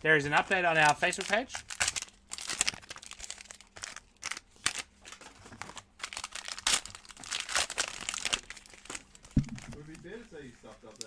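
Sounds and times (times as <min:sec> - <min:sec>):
card pack wrappers crinkling: 0:00.3 - 0:11.0.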